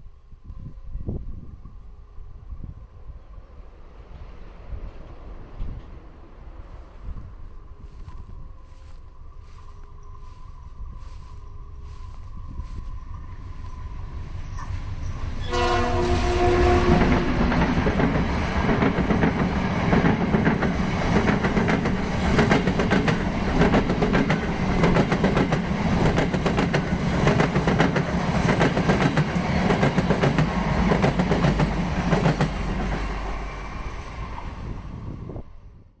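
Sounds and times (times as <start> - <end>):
train rumble: 0.4 - 36.0
locomotive horn blast: 15.4 - 17.5.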